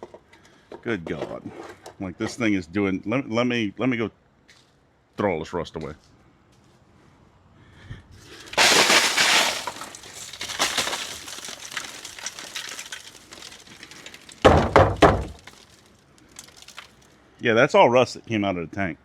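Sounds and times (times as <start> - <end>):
rust flakes rattling into bin: 8.3 - 17.1.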